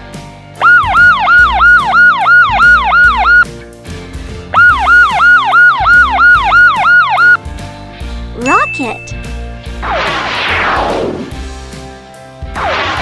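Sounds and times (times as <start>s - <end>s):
background music: 0.0s - 13.0s
police siren yelping: 0.6s - 3.5s, 4.6s - 7.4s.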